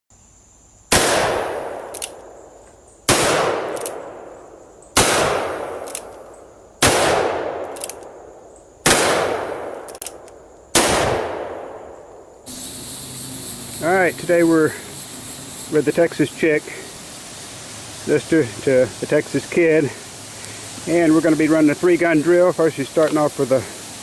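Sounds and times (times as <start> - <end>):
gunshots with long echo: 0.9 - 2.4, 3.1 - 6.2, 6.8 - 12.4.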